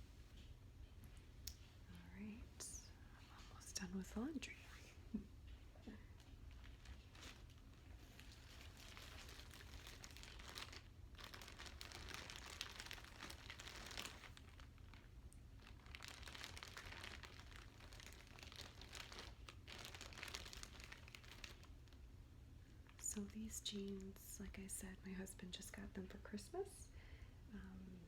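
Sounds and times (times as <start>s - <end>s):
plastic bag crinkling: 6.0s - 22.1s.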